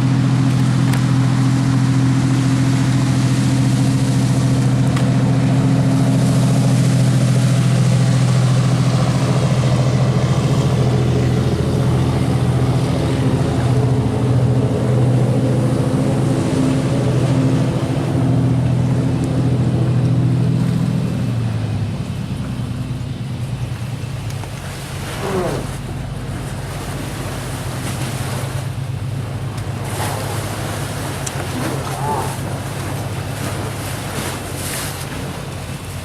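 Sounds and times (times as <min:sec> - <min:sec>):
engine running at low pitch: 0:00.0 - 0:36.0.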